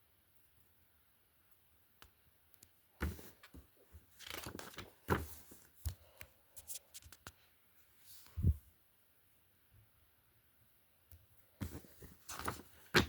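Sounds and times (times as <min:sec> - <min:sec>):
packaging rustling: 0:03.1 - 0:05.7, 0:11.6 - 0:13.0.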